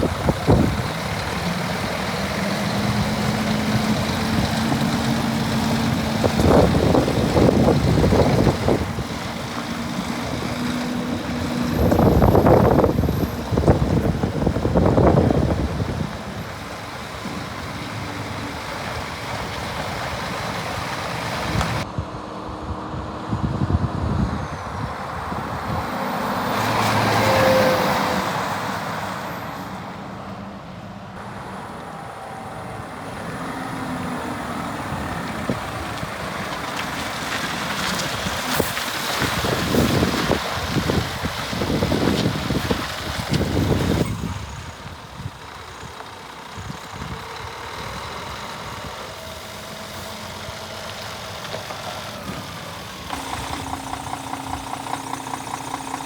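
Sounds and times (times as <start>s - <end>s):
wind buffeting microphone: 0.0s - 27.2s, 34.2s - 50.7s
heavy truck engine running: 0.0s - 56.0s.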